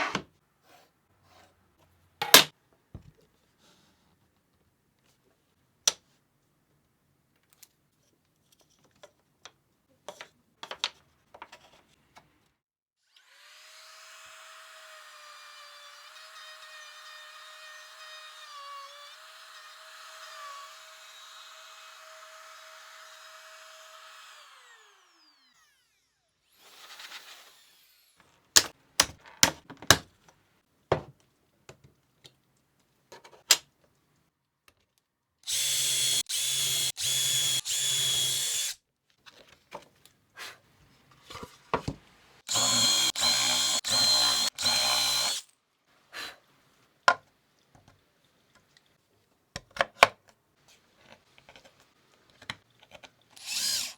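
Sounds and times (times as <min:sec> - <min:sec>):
power drill running in pulses: 0:23.2 - 0:28.2, 0:35.5 - 0:38.8, 0:42.5 - 0:45.4, 0:53.4 - 0:53.9
power tool motor whining: 0:23.2 - 0:28.2, 0:35.5 - 0:38.8, 0:42.5 - 0:45.4, 0:53.4 - 0:53.9
knocks of wood and tools: 0:30.9 - 0:31.9.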